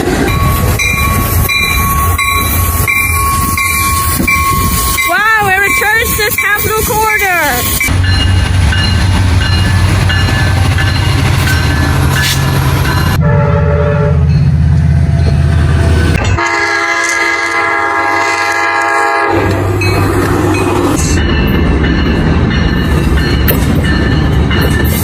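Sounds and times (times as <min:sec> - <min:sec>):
locomotive engine rumble: 0:00.0 - 0:25.0
locomotive horn chord: 0:13.1 - 0:14.4, 0:16.3 - 0:19.6.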